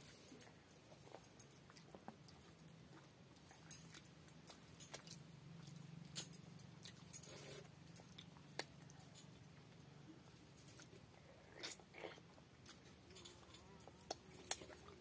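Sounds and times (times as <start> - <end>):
wet chewing mouth sounds: 0.0 - 4.1, 10.6 - 15.0
low steady hum: 0.0 - 15.0.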